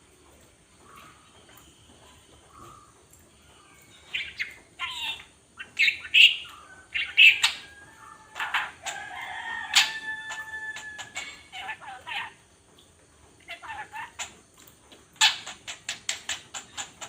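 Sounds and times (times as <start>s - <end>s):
bird chirping and chattering: 2.5s - 7.7s, 8.3s - 9.0s, 9.7s - 14.4s, 15.2s - 17.0s.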